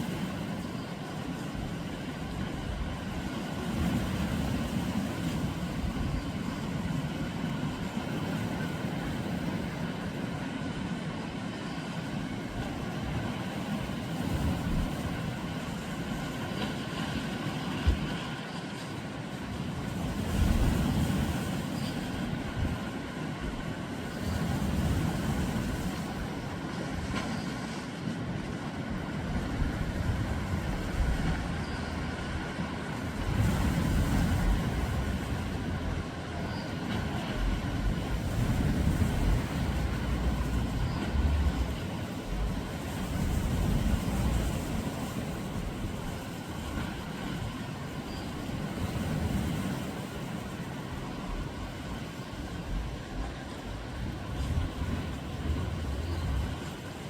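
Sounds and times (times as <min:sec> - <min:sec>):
low vehicle rumble: 0:37.3 - 0:42.6, 0:52.7 - 0:56.6.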